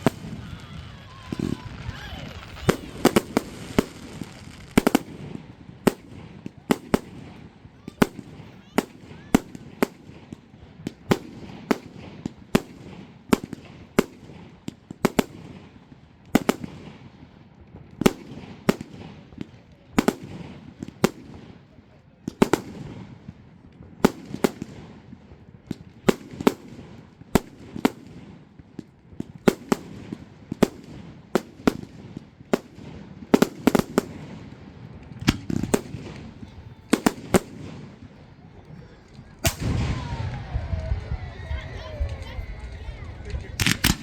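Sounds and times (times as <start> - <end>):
fireworks bangs: 0.0 - 17.2, 18.0 - 44.0
low rumble: 39.0 - 44.0.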